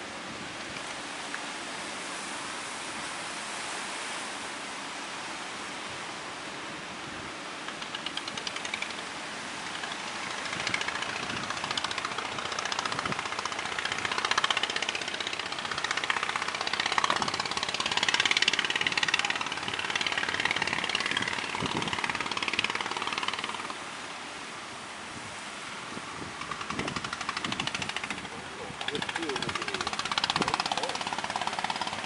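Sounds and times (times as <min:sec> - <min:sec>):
boat engine pulsing: 0:07.6 - 0:24.4, 0:25.8 - 0:32.0.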